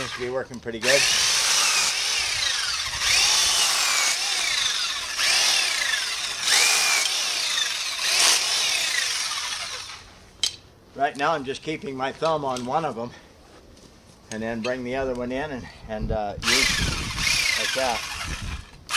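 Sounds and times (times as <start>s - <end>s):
electric chainsaw cutting limbs: 0.0s - 10.1s, 16.4s - 18.9s.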